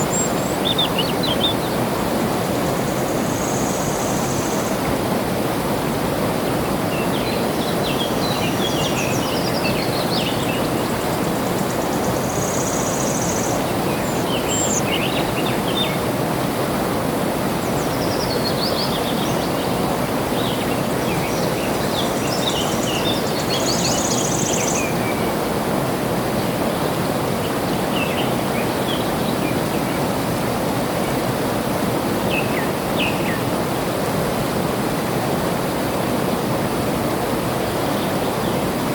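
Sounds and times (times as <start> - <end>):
flowing water rushing: 0.0 - 38.9
small birds chirping: 7.2 - 16.0, 17.8 - 25.2.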